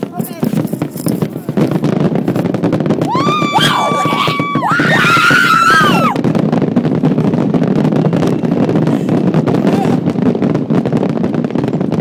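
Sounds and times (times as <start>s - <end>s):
scattered crackles: 0.0s - 12.0s
high-pitched woo cheers: 3.0s - 6.2s.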